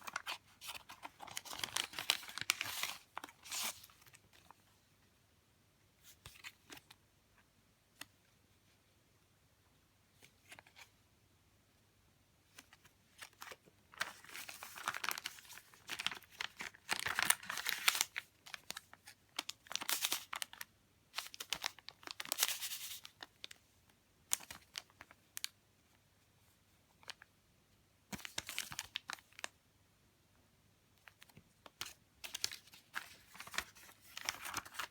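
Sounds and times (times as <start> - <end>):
paper and plastic rustling: 0.0 - 4.6, 12.6 - 23.6, 31.0 - 34.9.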